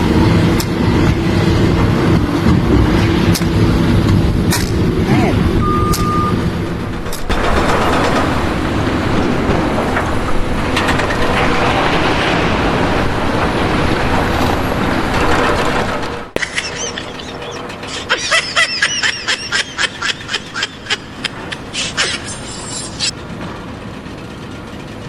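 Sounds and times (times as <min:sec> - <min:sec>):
heavy engine running: 0:00.0 - 0:25.0
short beep: 0:05.6 - 0:06.4
rough mechanical din: 0:06.5 - 0:22.2.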